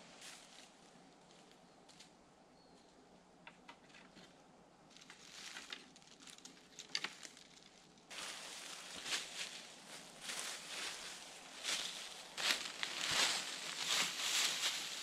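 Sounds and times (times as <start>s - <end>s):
twigs and leaves rustling: 3.7s - 15.0s
twigs clicking and snapping: 4.9s - 9.4s.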